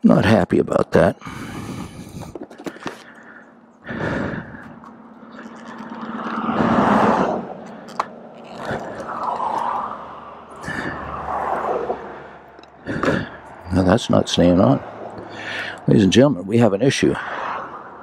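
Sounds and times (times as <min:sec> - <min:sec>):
vehicle passing: 0:01.2 - 0:18.0
plastic scraping: 0:01.9 - 0:03.3, 0:04.6 - 0:10.7.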